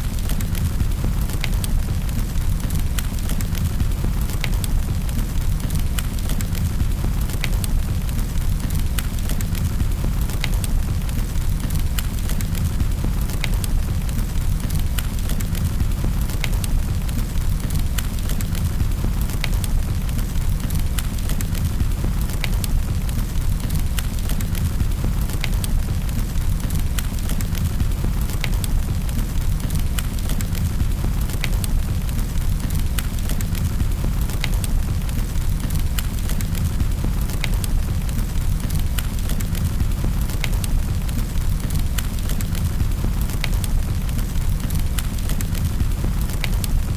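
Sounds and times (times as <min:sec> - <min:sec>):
wood fire crackling and popping: 0:00.0 - 0:46.9.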